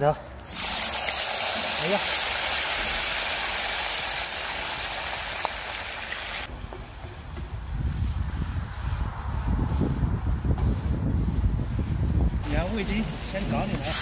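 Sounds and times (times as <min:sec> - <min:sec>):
pumpkin sizzling in hot oil: 0:00.5 - 0:06.5.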